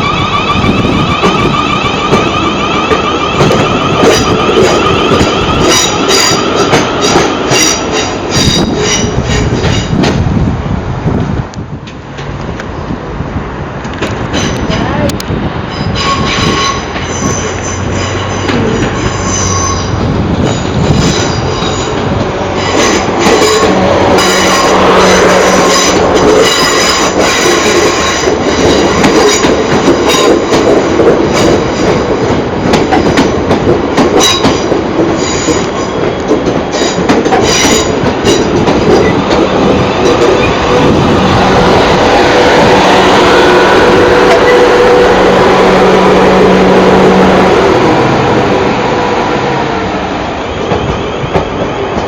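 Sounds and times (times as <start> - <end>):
train wheels squealing on rails: 0.0 - 10.0, 14.3 - 32.1, 34.2 - 48.3.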